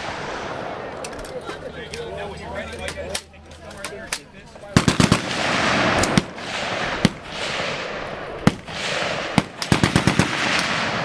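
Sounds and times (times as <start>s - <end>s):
continuous noise: 0.0s - 11.0s
gunshots: 4.6s - 11.0s
machine-gun burst: 4.8s - 11.0s.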